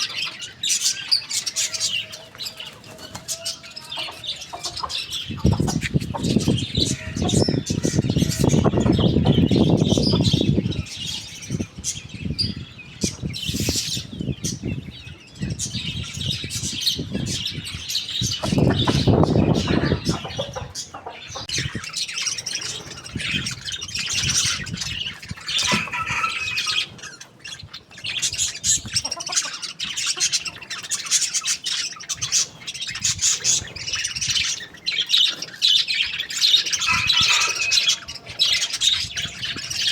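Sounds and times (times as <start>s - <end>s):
birds chirping and squawking: 0.0s - 39.9s.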